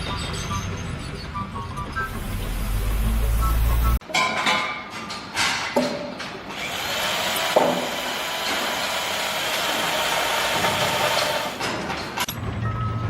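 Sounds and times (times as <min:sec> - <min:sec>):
power tool running: 0:06.5 - 0:11.6
sharp knocks: 0:07.5 - 0:08.0.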